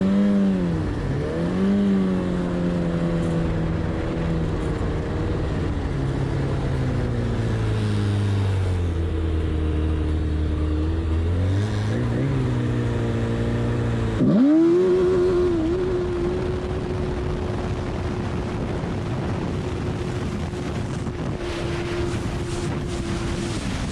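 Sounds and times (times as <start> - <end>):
snowmobile engines running: 0.0 - 23.9
snowmobile engine revving up: 10.8 - 18.0, 19.6 - 23.9.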